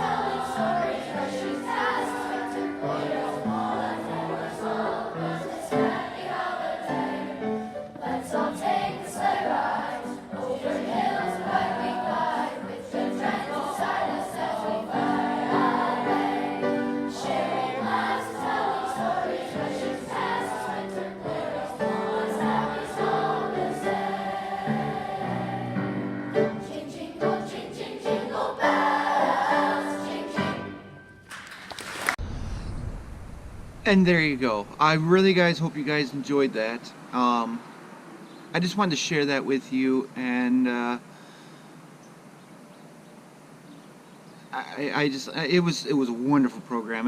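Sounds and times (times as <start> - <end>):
children's choir singing: 0.0 - 31.2.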